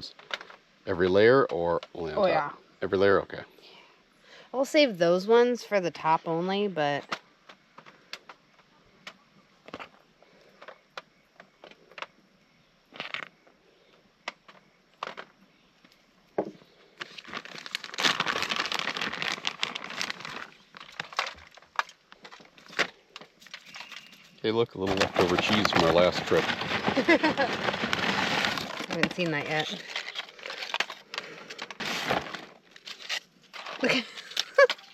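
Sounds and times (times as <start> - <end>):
plastic bag crinkling: 16.9 - 34.9
tortilla chips crackling: 16.9 - 34.9.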